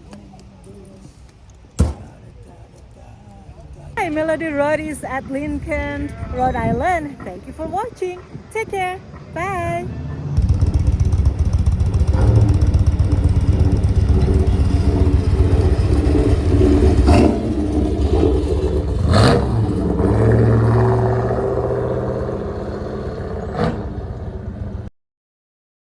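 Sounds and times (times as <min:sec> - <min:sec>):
vehicle engine running: 0:10.4 - 0:24.9.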